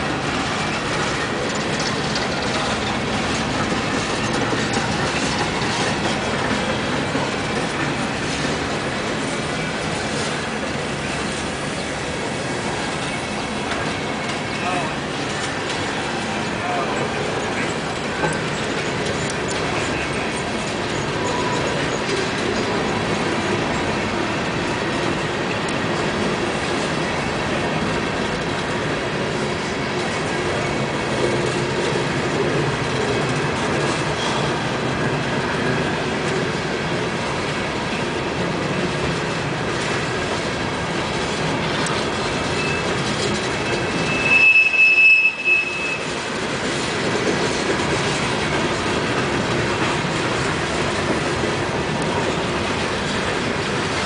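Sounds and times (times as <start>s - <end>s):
train wheels running on rails: 0.0s - 54.0s
high wheel squeal: 42.4s - 46.2s.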